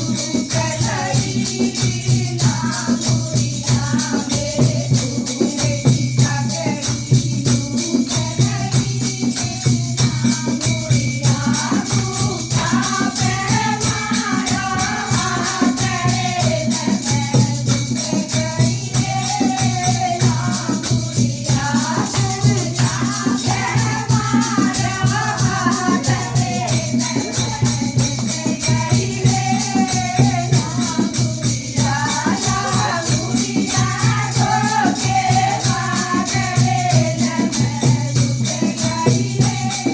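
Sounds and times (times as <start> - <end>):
jingling percussion: 0.0 - 39.9
person singing: 31.9 - 33.6.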